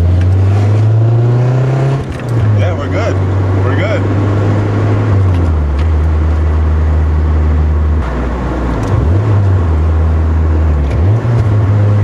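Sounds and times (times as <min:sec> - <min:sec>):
car engine droning: 0:00.0 - 0:12.0.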